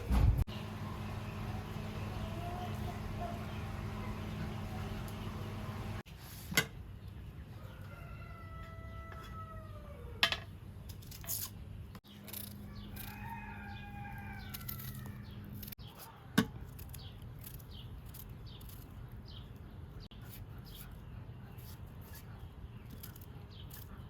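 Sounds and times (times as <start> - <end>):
rooster crowing: 7.6 - 10.2, 12.6 - 15.2.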